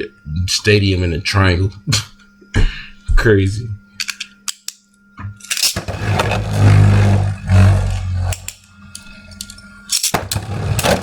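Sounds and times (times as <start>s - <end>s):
spinning tops whirring and grinding: 5.4s - 11.0s.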